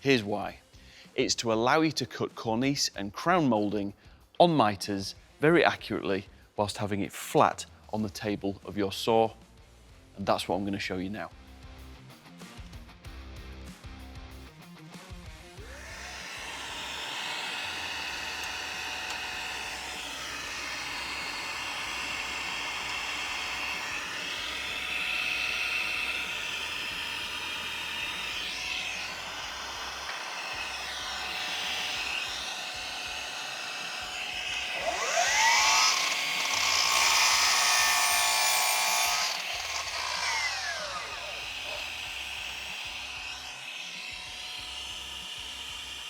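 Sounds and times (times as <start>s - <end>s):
mitre saw cutting wood: 15.6s - 46.0s.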